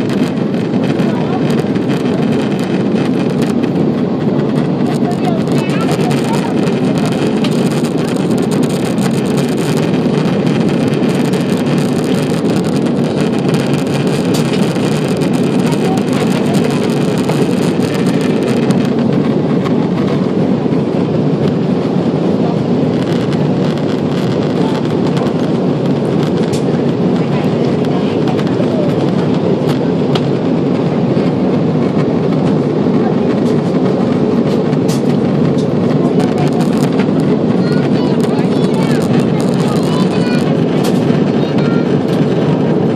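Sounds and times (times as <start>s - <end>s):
airplane cabin engine rumble: 0.0s - 42.9s.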